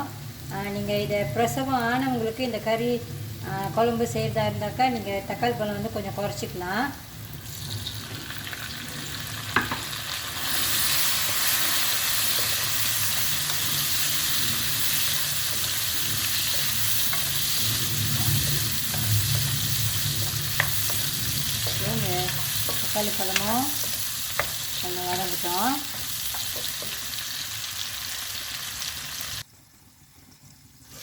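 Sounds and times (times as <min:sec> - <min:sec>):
vegetables sizzling in oil: 0:00.0 - 0:29.7
utensil tapping pan: 0:09.5 - 0:09.9, 0:10.5 - 0:27.1.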